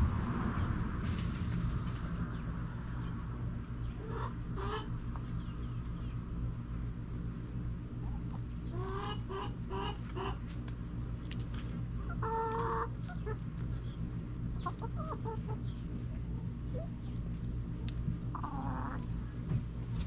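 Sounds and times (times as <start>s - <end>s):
steady low rumble: 0.0s - 8.9s
chickens clucking: 1.2s - 20.0s.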